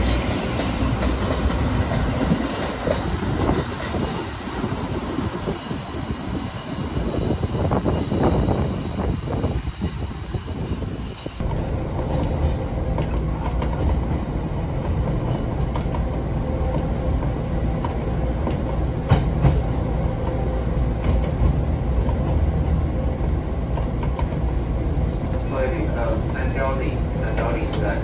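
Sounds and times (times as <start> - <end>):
train low rumble: 0.0 - 28.0
high wheel squeal: 3.8 - 11.4, 25.1 - 28.0.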